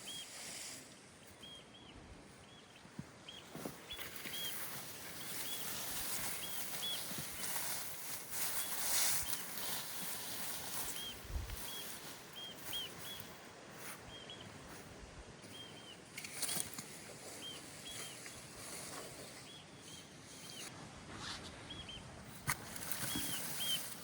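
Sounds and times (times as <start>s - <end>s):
outdoor background hiss: 0.0s - 24.0s
small bird chirping: 1.2s - 14.7s, 15.4s - 20.7s, 22.8s - 24.0s.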